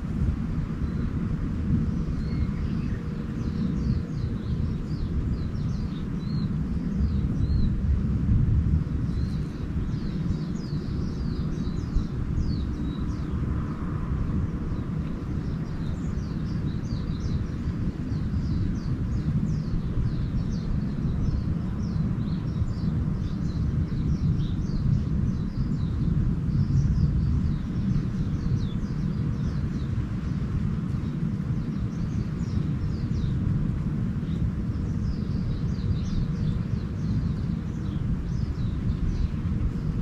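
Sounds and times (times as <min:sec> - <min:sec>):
constant low rumble: 0:00.0 - 0:40.0
small birds twittering: 0:00.1 - 0:40.0.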